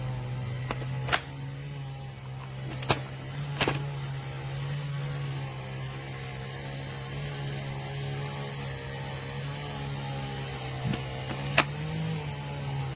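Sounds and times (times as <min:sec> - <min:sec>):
electric chainsaw motor running: 0:00.0 - 0:12.9
sharp click: 0:00.6 - 0:01.4, 0:10.7 - 0:11.8.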